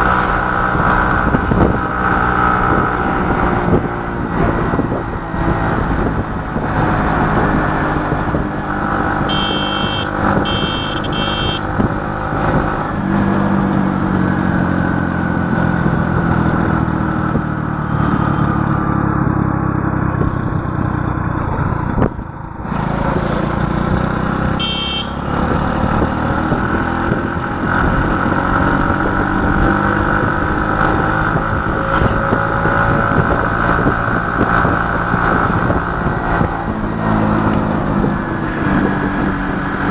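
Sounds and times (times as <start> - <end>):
vehicle engine running: 9.1 - 12.2, 17.5 - 26.2
short high beeps: 9.3 - 11.6.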